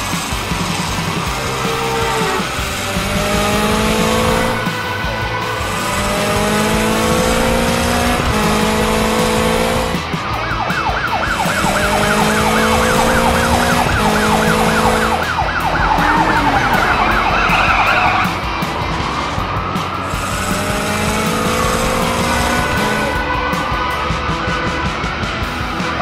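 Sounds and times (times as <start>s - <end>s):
background music: 0.0s - 26.0s
car sound effects: 0.0s - 26.0s
cartoon police siren warbling: 10.4s - 18.4s.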